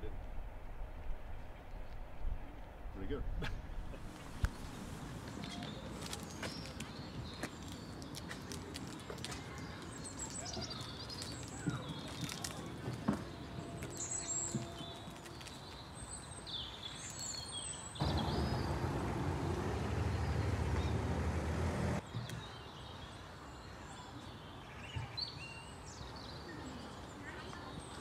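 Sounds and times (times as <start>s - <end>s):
small birds chirping: 4.0s - 28.0s
loud low rumbling: 18.0s - 22.0s.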